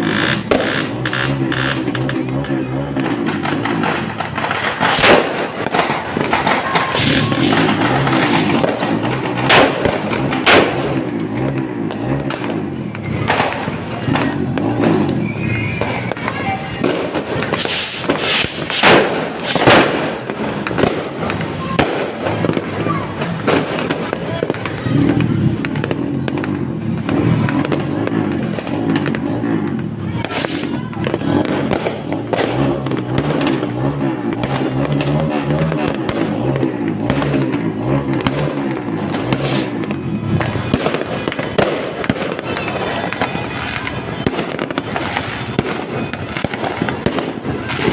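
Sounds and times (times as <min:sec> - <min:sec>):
low rumble: 0:00.0 - 0:19.4
loud firework bangs: 0:00.0 - 0:47.9
small firework pops: 0:00.0 - 0:47.9.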